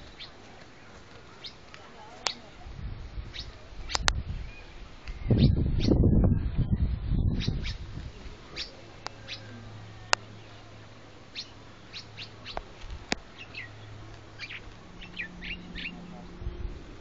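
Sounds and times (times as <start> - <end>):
small birds chirping: 0.0 - 17.0
sharp clicks: 3.9 - 4.2.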